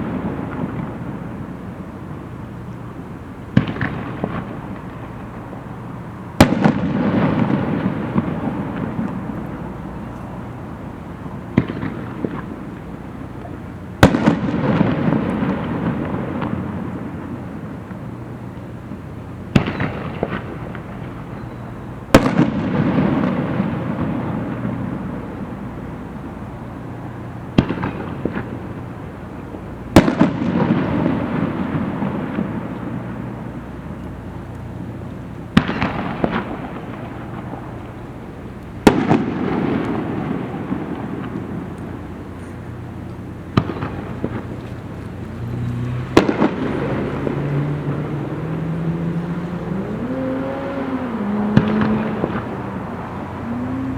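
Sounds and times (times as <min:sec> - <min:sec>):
firework crackles: 0:00.0 - 0:53.9
rolling echo: 0:00.0 - 0:53.9
firework shells bursting: 0:27.5 - 0:48.4, 0:50.8 - 0:53.9.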